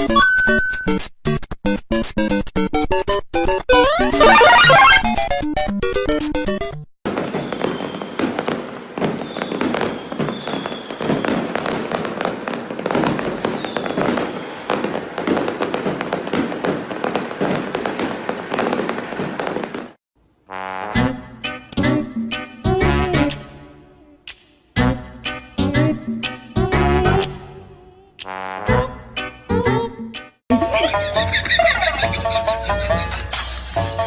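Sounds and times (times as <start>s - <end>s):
music: 0.0s - 6.8s, 20.6s - 34.0s
firecrackers going off: 7.1s - 20.0s.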